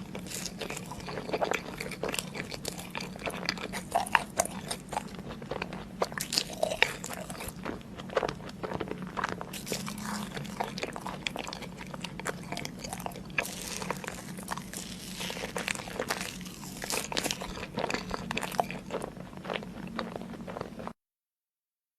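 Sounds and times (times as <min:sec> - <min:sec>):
person chewing crunchy food: 0:00.0 - 0:21.0.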